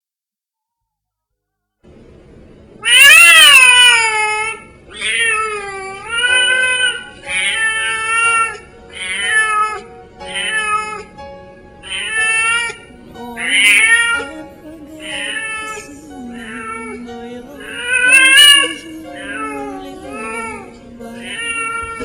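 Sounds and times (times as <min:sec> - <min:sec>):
cat meowing: 0:02.8 - 0:11.2, 0:11.8 - 0:14.3, 0:15.0 - 0:17.0, 0:17.6 - 0:22.0.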